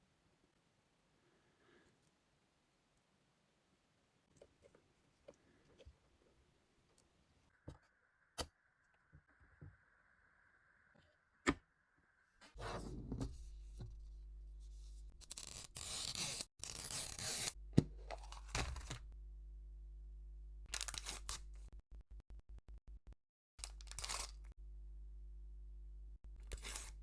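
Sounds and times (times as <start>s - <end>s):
packaging being torn open: 20.7s - 21.4s, 23.6s - 24.4s.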